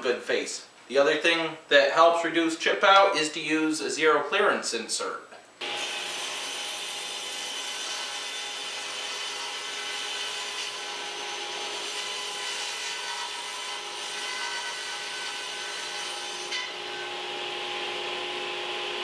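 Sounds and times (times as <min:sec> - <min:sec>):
table saw cutting wood: 0:05.6 - 0:19.0.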